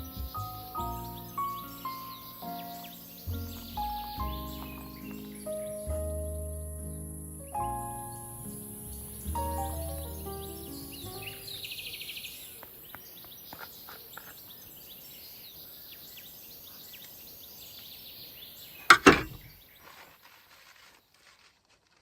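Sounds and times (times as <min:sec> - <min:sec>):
loud knocks: 0:18.9 - 0:19.5.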